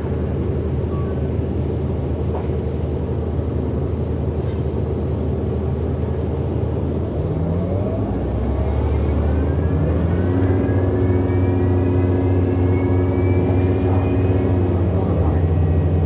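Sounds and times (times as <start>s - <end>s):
bus engine drone: 0.0s - 16.0s.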